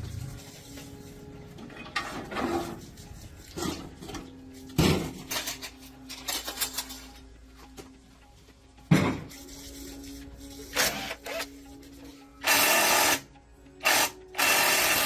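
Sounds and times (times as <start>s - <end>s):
metal tools clinking: 5.1s - 7.3s.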